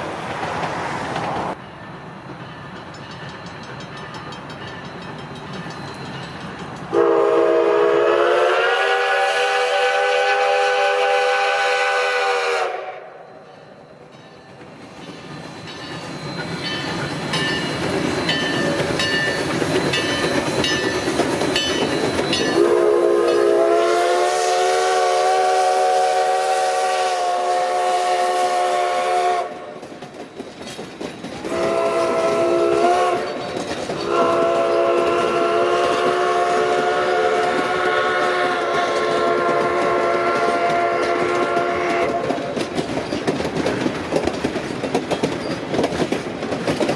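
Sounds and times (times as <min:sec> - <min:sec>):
passing train rushing and clattering: 0:00.0 - 0:46.9
steam locomotive whistle blasts: 0:06.9 - 0:13.5, 0:21.9 - 0:29.8, 0:31.4 - 0:42.5.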